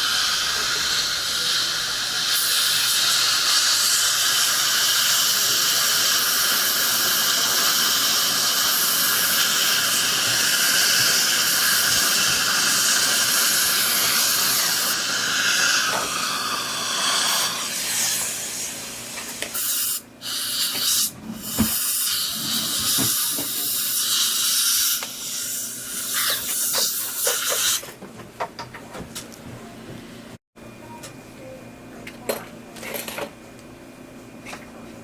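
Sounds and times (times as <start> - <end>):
dental suction hiss: 0.0 - 27.8.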